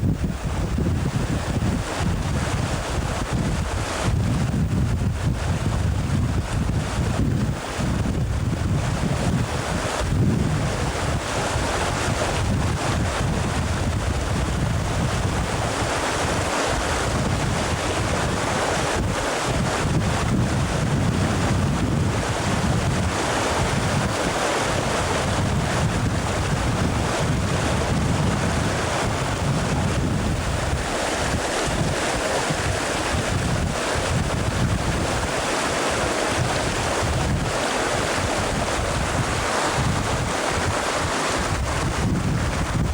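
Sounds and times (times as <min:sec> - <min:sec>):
wind buffeting microphone: 0:00.0 - 0:42.9
river water rushing: 0:05.2 - 0:42.9.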